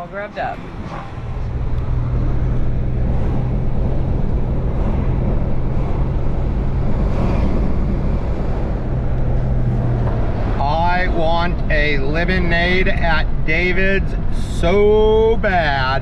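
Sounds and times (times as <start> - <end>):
vehicle engine and road hum: 0.0 - 16.0
wind noise on microphone: 0.5 - 10.6.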